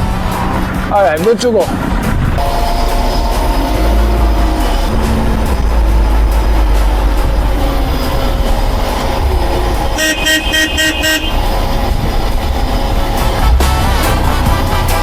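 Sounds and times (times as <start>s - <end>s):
machine engine rumbling: 1.8s - 15.0s.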